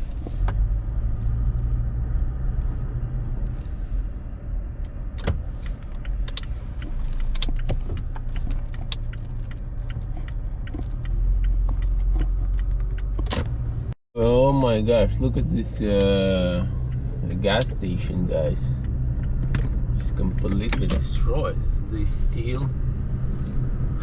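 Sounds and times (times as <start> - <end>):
car road rumble: 0.0 - 24.0
small clicks and rattles: 5.6 - 13.3.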